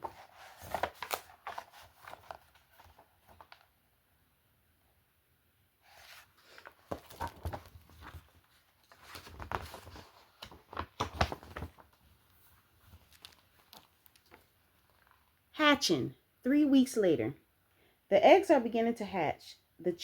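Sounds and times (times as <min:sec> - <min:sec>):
book pages rustling: 0:00.0 - 0:03.8, 0:05.8 - 0:15.4.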